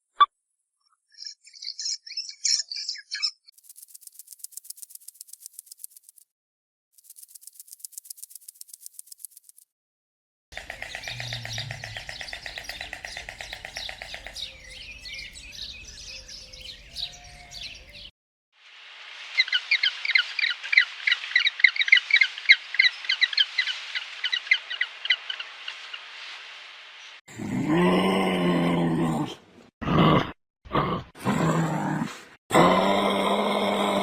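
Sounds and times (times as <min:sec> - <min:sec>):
quick high bird chirps: 0:01.1 - 0:05.7
bird trilling: 0:10.6 - 0:18.1.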